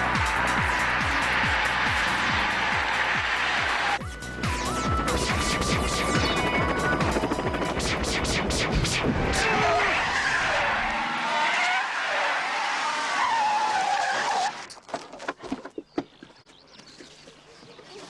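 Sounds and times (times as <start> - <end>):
car tyres squealing: 0.0 - 4.0, 9.3 - 14.7.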